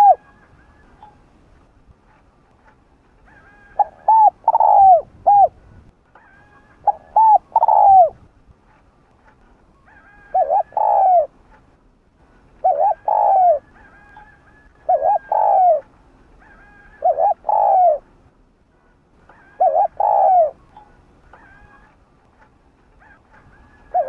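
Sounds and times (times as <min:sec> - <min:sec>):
dove cooing: 0:00.0 - 0:01.1, 0:03.3 - 0:05.6, 0:06.2 - 0:08.2, 0:09.9 - 0:11.3, 0:12.6 - 0:18.1, 0:19.3 - 0:22.0, 0:23.0 - 0:24.0.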